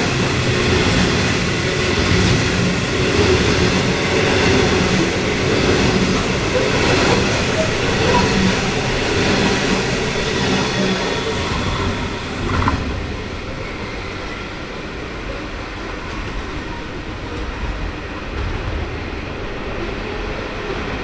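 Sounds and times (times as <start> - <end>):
low train rumble: 0.0 - 21.0
hopper wagons rolling on rails: 0.3 - 14.3.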